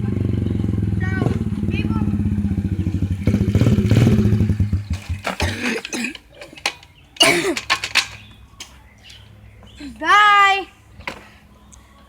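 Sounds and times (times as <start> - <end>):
dirt bike engine running: 0.0 - 6.1.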